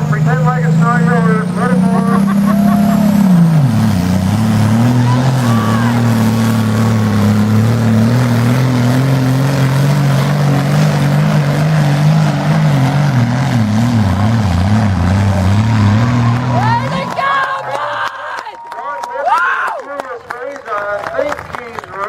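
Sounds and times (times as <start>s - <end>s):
tractor engine under heavy load: 0.0s - 18.4s.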